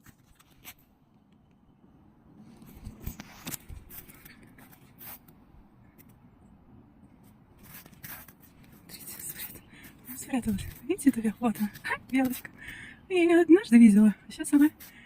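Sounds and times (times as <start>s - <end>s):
crunches and rustles: 0.0s - 1.0s, 2.4s - 6.3s, 7.1s - 12.8s.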